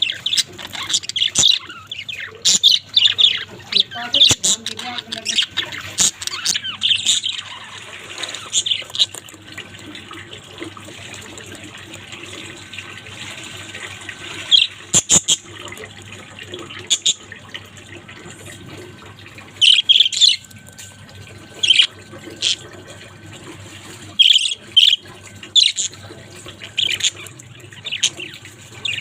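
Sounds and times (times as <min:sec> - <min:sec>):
budgerigars chattering: 0:00.0 - 0:09.2, 0:16.8 - 0:17.2, 0:19.6 - 0:20.4, 0:21.6 - 0:22.6, 0:24.2 - 0:25.0, 0:25.6 - 0:26.0, 0:26.7 - 0:29.0.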